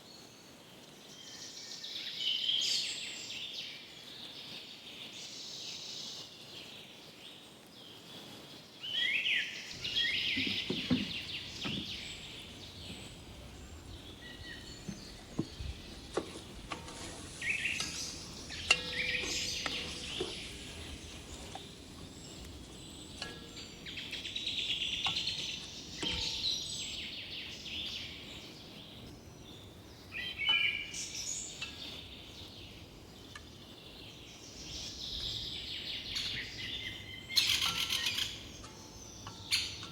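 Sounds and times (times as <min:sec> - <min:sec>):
steady background hiss: 0:00.0 - 0:39.9
small birds chirping and trilling: 0:08.8 - 0:39.9.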